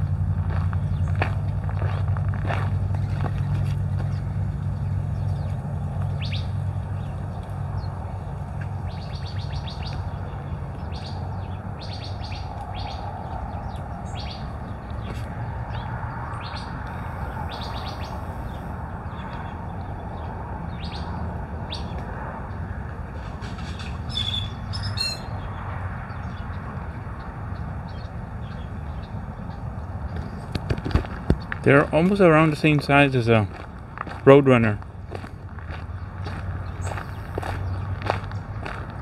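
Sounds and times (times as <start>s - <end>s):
low engine rumble: 0.0s - 39.0s
small birds chirping: 2.9s - 22.6s, 23.5s - 30.6s, 35.9s - 38.6s.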